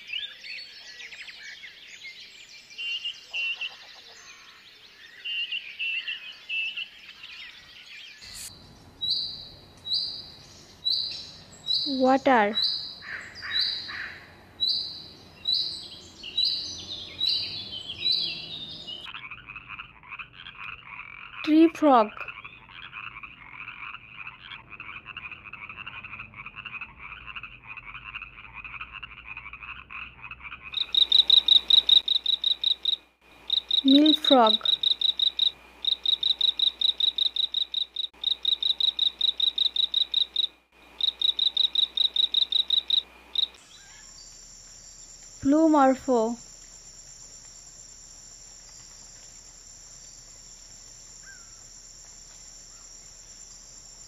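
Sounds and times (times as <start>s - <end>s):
otter chirping: 22.3s - 44.2s.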